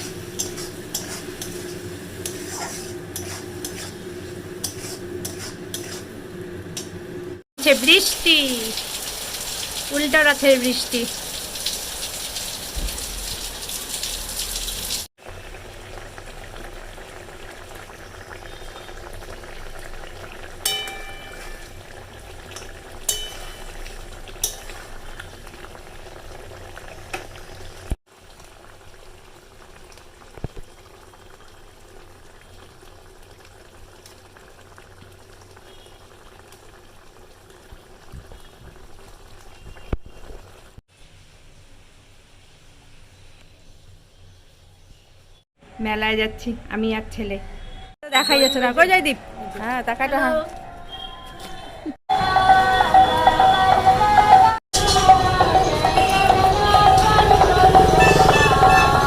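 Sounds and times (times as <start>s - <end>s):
heavy rain pouring: 7.6s - 16.3s.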